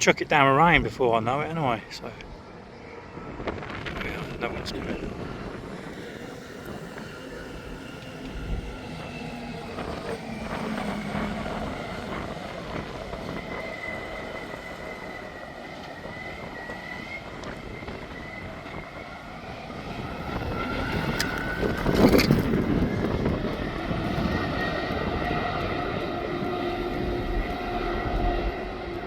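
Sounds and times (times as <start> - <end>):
engine running: 4.7 - 29.0.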